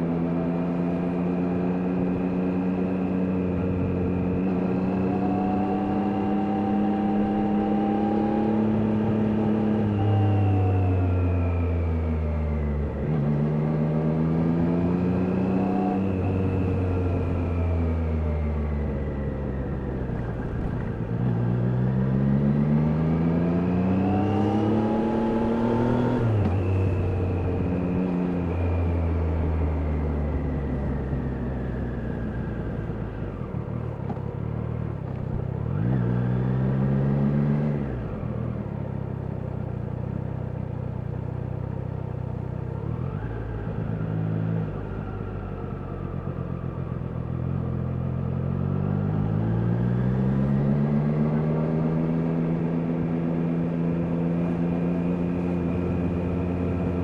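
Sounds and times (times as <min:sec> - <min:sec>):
motorcycle engine revving: 0:19.7 - 0:31.2.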